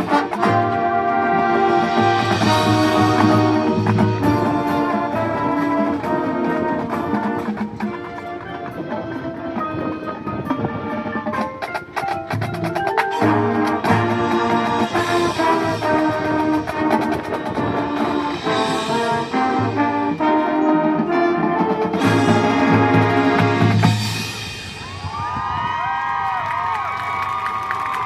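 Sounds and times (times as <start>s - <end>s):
brass chords: 0.0s - 24.8s
marching band percussion: 0.0s - 25.6s.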